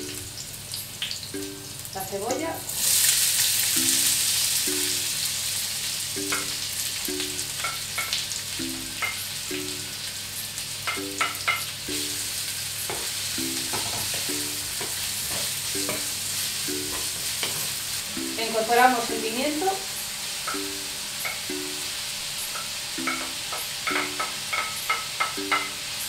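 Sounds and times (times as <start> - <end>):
onion sizzling in frying pan: 0.0 - 26.0.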